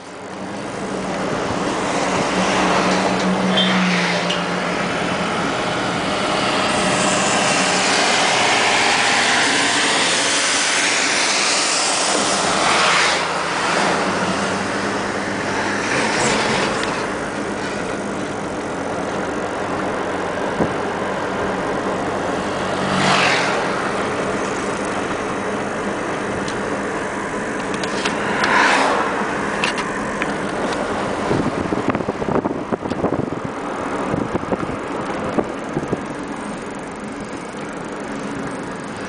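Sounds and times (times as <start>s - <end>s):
vehicles passing with engine hum: 0.0s - 39.0s.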